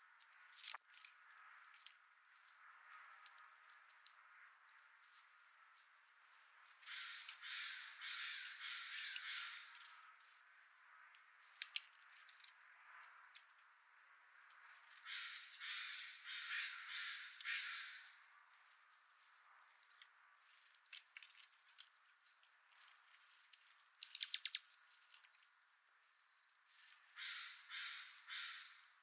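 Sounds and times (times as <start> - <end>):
crow cawing: 6.8 - 10.0, 14.9 - 18.2, 27.1 - 28.9
sharp clicks: 24.0 - 24.7.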